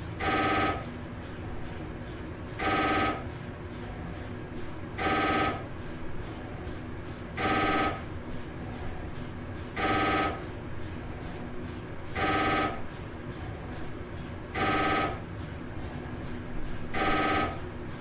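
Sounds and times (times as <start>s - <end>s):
telephone electronic trilling ring: 0.2s - 0.8s, 2.6s - 3.2s, 5.0s - 5.6s, 7.4s - 8.0s, 9.8s - 10.4s, 12.2s - 12.8s, 14.6s - 15.2s, 17.0s - 17.6s.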